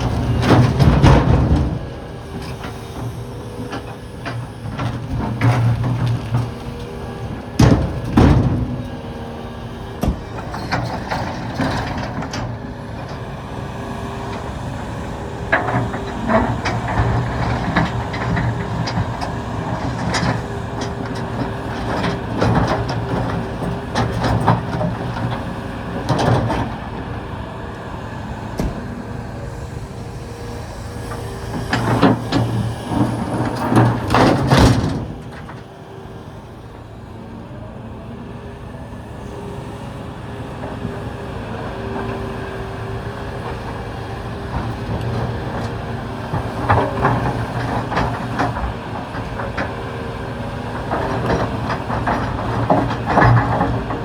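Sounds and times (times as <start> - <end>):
rocks clanking against steel: 0.0 - 9.0, 14.0 - 27.2, 31.1 - 35.8, 50.6 - 54.0
excavator diesel engine running: 0.0 - 54.0.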